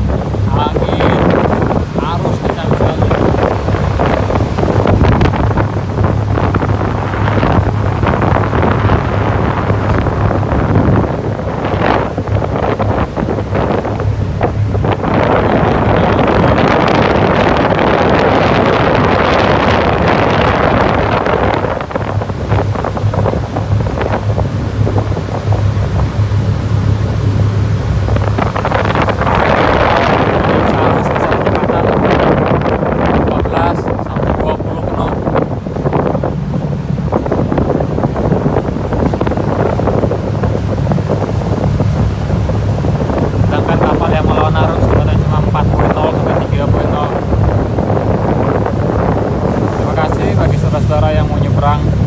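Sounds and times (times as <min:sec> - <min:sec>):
ship engine drone: 0:00.0 - 0:52.0
water rushing past hull: 0:00.0 - 0:52.0
wind buffeting microphone: 0:00.0 - 0:52.0.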